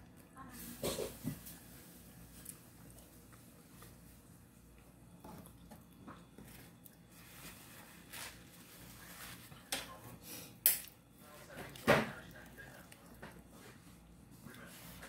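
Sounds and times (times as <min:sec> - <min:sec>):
person chewing food: 0:02.4 - 0:08.3.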